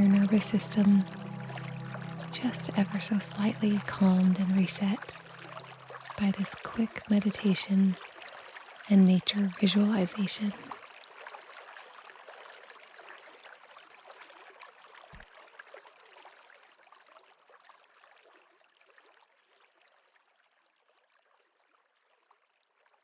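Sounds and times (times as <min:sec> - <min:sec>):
babbling stream: 0:00.0 - 0:13.7.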